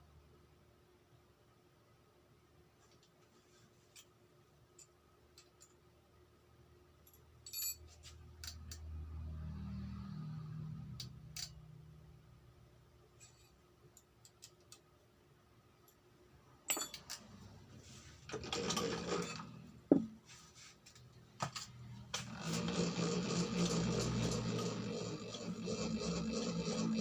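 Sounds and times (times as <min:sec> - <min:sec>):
metal tools clinking: 0:07.1 - 0:08.1, 0:16.7 - 0:17.4
boring machine running: 0:22.2 - 0:27.0.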